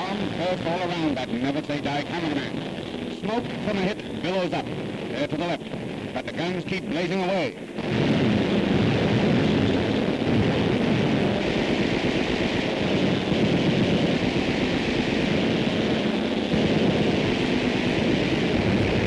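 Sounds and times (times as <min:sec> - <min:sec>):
aircraft engines roaring: 0:00.0 - 0:19.0.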